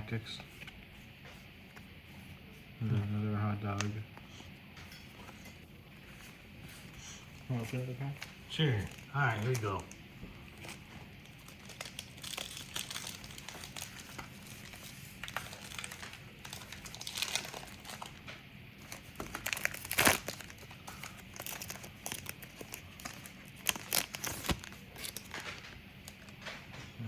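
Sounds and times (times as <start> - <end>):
wrapper tearing and crinkling: 8.6 - 10.0, 10.6 - 18.2, 18.8 - 25.6.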